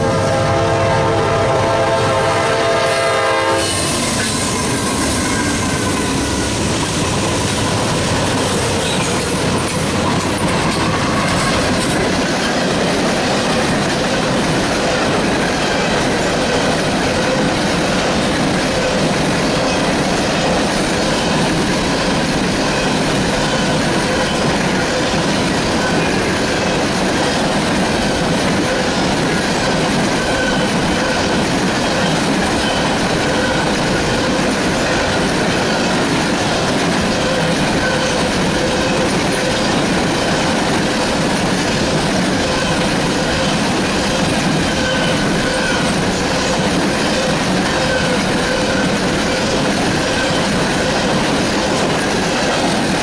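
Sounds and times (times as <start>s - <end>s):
locomotive horn chord: 0.0s - 4.0s
train wheel clatter on rail joints: 1.0s - 53.0s.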